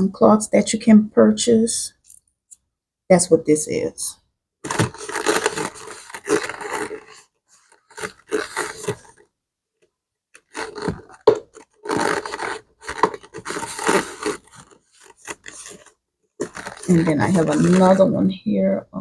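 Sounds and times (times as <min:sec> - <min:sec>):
scrubbing on leather bag: 0:10.4 - 0:18.0.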